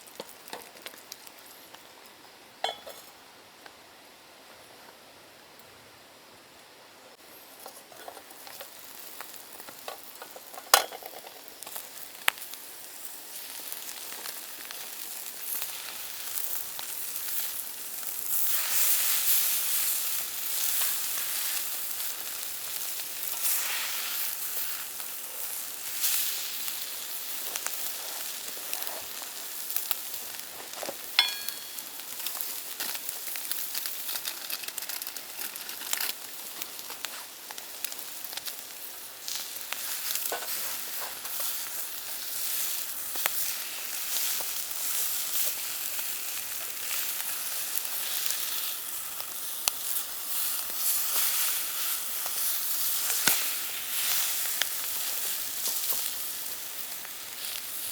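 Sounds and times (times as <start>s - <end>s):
food sizzling in a pan: 7.6s - 57.9s
utensils knocking: 31.2s - 31.9s.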